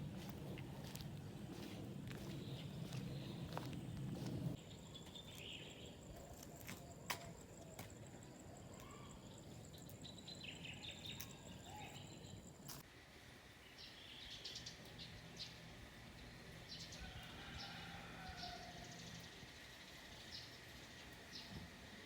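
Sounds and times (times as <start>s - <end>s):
faint outdoor ambience: 0.0s - 22.0s
birds chirping: 0.2s - 7.0s.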